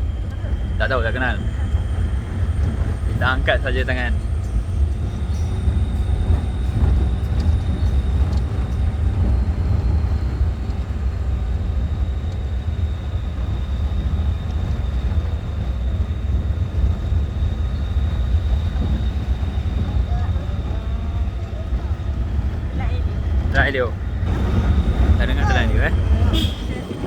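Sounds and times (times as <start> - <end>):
truck engine and road rumble: 0.0 - 27.0.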